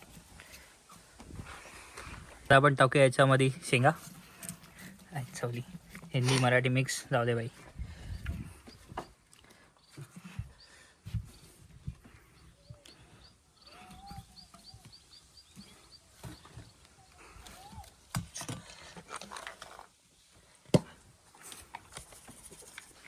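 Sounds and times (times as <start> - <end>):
leaves rustling: 0.0 - 20.6
bird chirping: 5.2 - 18.0.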